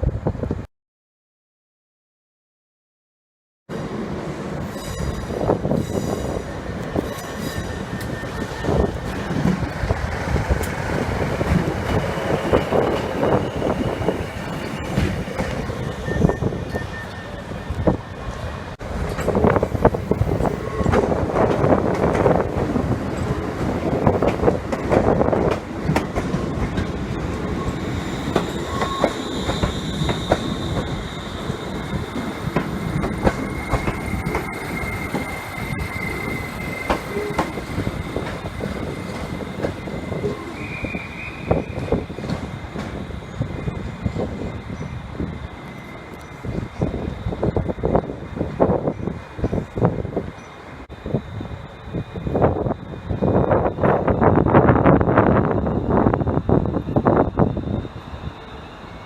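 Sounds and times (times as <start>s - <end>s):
train rumbling over rails: 3.7s - 59.0s
train wheels squealing: 4.6s - 18.6s, 25.3s - 59.0s.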